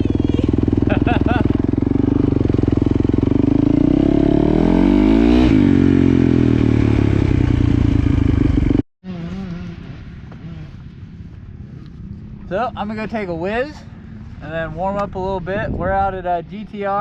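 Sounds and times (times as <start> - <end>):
dirt bike engine revving: 0.0 - 11.2.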